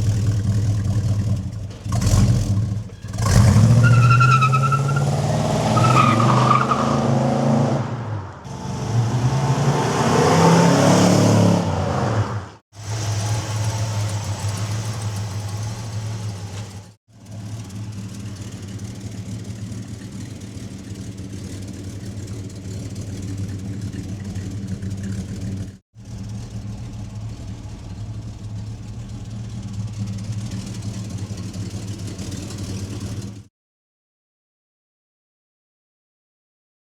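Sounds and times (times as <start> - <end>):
car engine idling: 0.0 - 3.9, 12.8 - 33.4.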